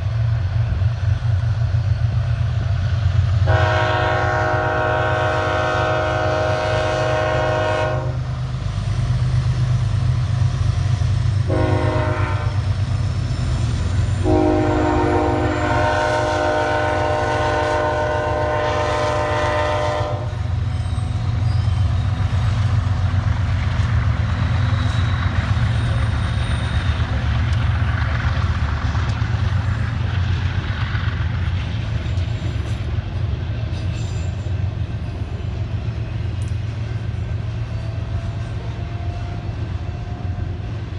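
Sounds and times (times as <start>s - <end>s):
locomotive engines rumbling: 0.0s - 40.9s
locomotive horn chord: 3.4s - 8.3s, 11.5s - 12.6s, 14.2s - 20.4s
train wheels clacking on rails: 7.2s - 40.9s.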